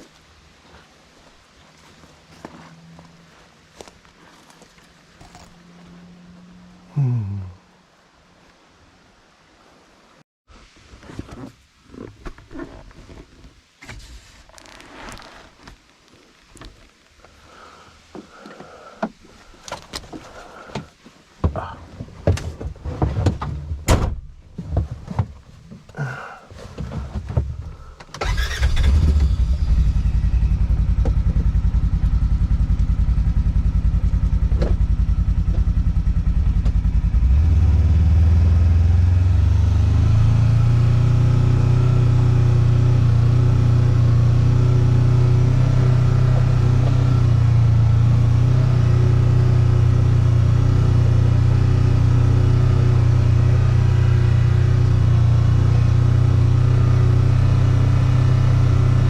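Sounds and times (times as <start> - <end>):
vehicle engine running: 25.9 - 59.0.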